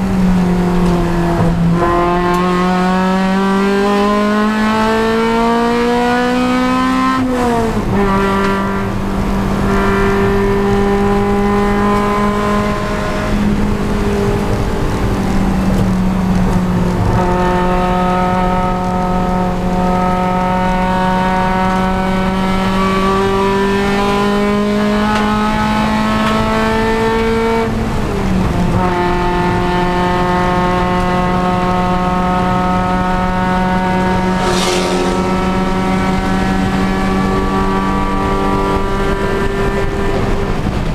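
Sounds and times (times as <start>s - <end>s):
race car engine at high revs: 0.0s - 40.9s
brief high hiss: 34.2s - 36.5s.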